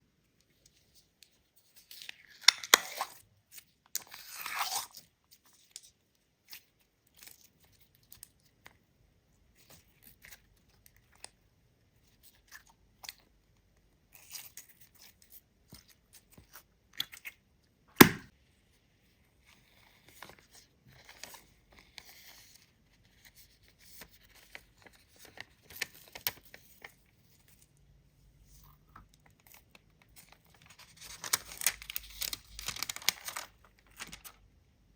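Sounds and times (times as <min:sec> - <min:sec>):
slime popping: 0:18.0 - 0:18.3.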